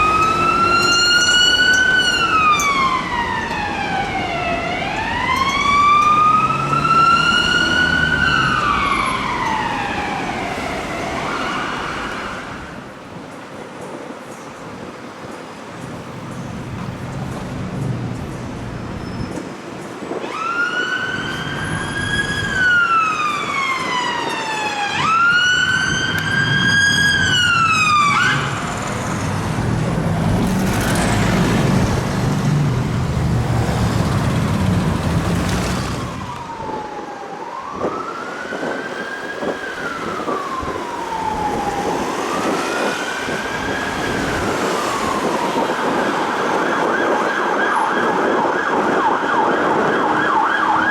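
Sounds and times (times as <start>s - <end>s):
emergency siren wailing: 0.0s - 12.8s, 20.1s - 32.6s, 33.2s - 50.9s
heavy vehicle passing: 28.0s - 36.5s.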